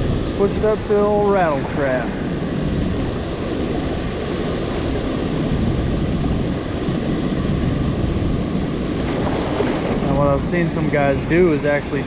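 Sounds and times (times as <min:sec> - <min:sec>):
water rushing from dam gates: 0:00.0 - 0:02.4.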